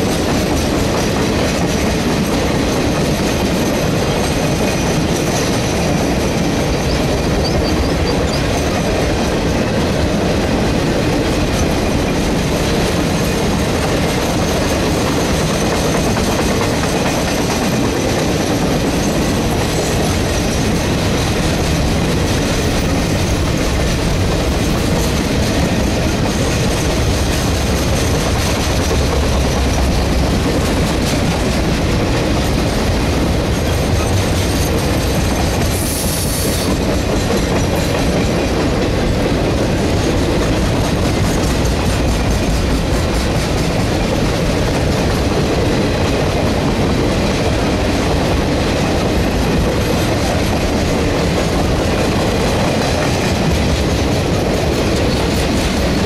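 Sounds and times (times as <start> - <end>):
freight train rumbling past: 0.0 - 56.0
wheels clickety-clack on rails: 0.0 - 56.0.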